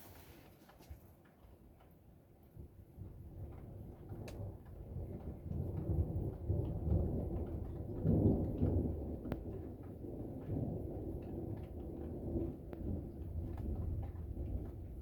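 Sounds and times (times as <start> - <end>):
rolling thunder: 3.3 - 15.0
light ticks: 3.4 - 15.0.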